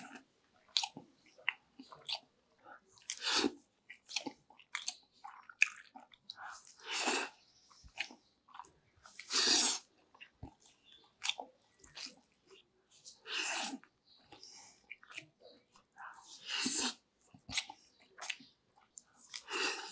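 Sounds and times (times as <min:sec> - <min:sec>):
wet chewing mouth sounds: 0:00.0 - 0:19.9.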